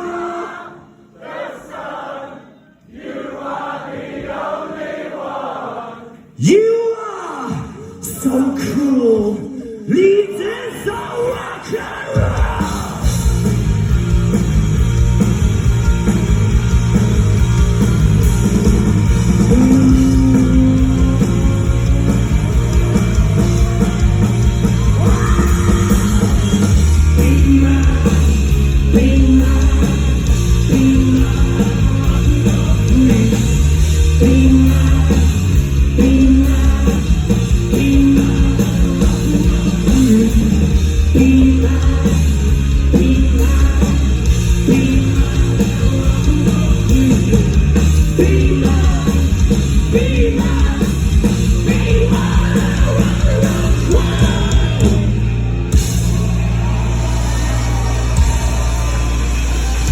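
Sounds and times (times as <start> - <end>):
live rock band playing: 12.2 - 59.9
person singing: 19.4 - 23.6, 24.8 - 55.1.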